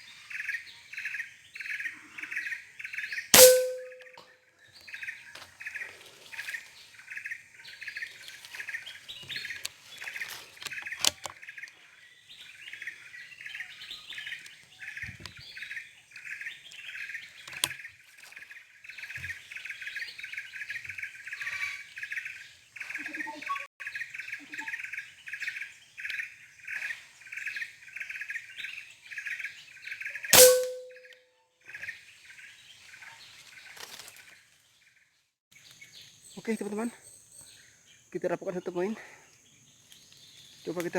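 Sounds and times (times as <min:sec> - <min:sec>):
air rifle shot: 0:03.4 - 0:04.0, 0:30.4 - 0:31.0.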